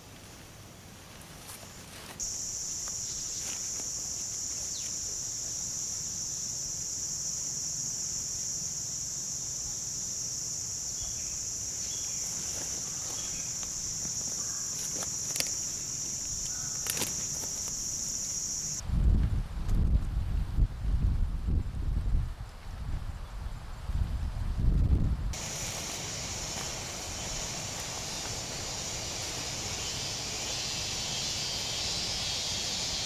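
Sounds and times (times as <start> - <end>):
insects chirping chorus: 1.6 - 18.8, 25.3 - 33.0.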